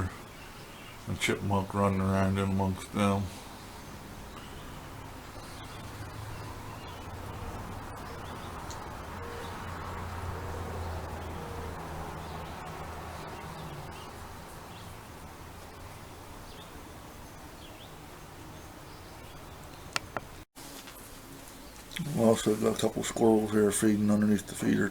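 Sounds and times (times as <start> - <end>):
sparrows chirping: 0.0 - 20.0
vehicle passing by: 3.3 - 16.8.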